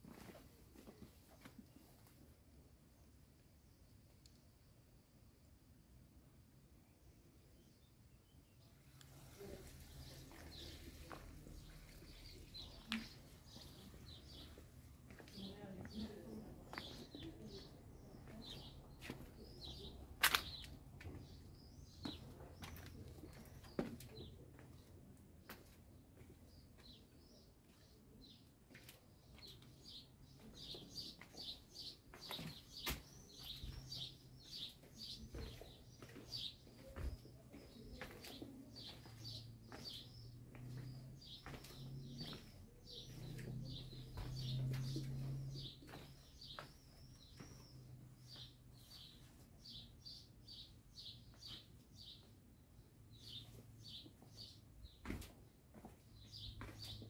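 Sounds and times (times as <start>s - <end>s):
footsteps on stone paving: 0.0s - 1.8s, 9.3s - 48.5s, 53.3s - 57.0s.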